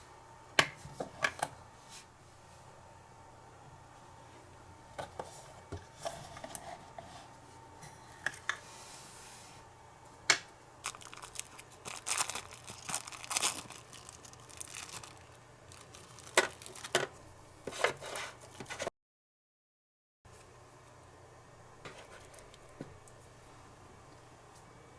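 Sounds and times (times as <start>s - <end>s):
light rustling and crinkling: 10.8s - 18.9s.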